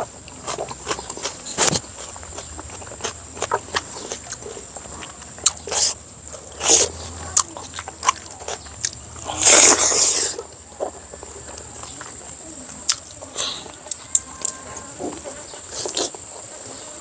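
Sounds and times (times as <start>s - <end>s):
person chewing: 0.0s - 16.5s.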